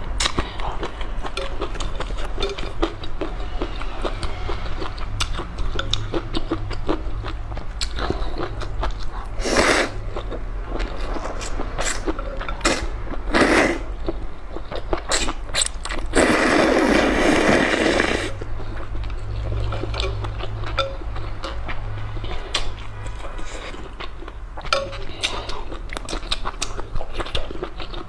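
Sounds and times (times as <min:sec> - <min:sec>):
chewing with wet mouth clicks: 0:00.0 - 0:16.4, 0:18.4 - 0:28.0
steady low hum: 0:00.0 - 0:28.0
noodle slurping: 0:09.3 - 0:10.0, 0:11.8 - 0:14.0, 0:15.1 - 0:18.4.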